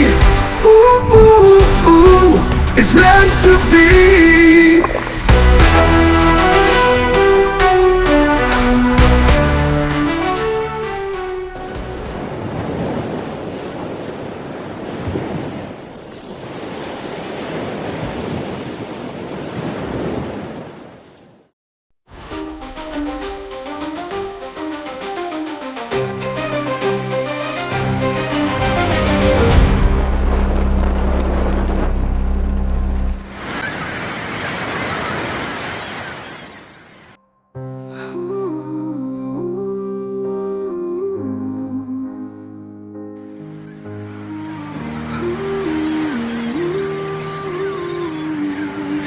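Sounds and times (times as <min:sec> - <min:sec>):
sea waves rushing: 0:00.0 - 0:21.2, 0:22.1 - 0:37.2, 0:43.3 - 0:49.0
rushing wind: 0:00.1 - 0:06.4, 0:27.7 - 0:37.2.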